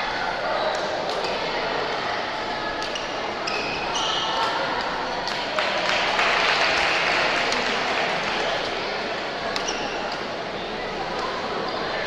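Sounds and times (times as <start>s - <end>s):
shoes squeaking on court floor: 2.9s - 4.6s, 9.5s - 10.2s
spectators clapping: 5.3s - 9.1s.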